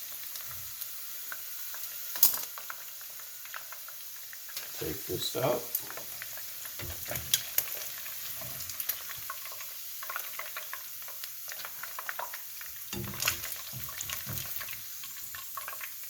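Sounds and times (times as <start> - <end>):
hot oil sizzling: 0.0 - 16.0.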